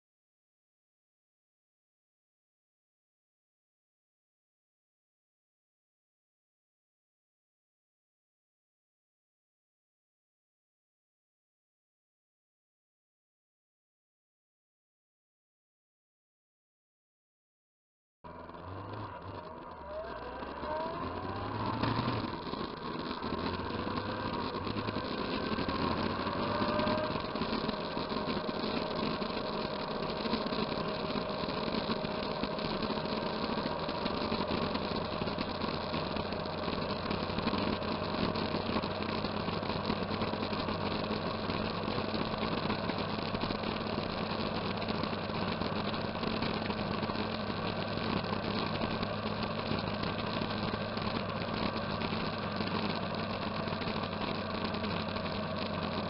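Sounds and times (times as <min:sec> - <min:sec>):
vehicle engine running: 0:18.3 - 0:56.0.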